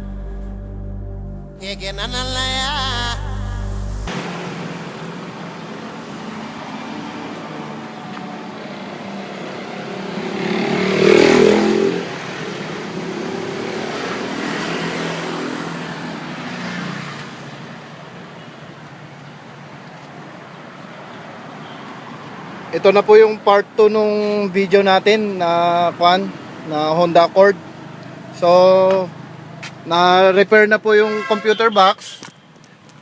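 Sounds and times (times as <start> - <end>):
traffic noise: 0.0 - 0.4, 1.6 - 33.0
vehicle passing by: 0.0 - 18.1.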